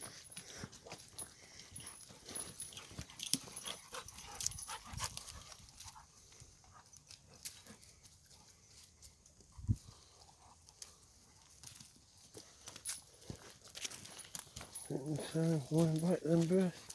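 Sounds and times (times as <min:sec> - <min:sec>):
dogs moving about: 0:00.2 - 0:08.3.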